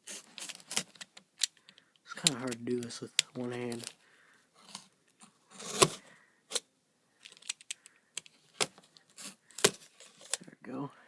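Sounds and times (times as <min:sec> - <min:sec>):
sharp clicks and knocks of handling: 0:00.3 - 0:04.0, 0:07.2 - 0:10.5.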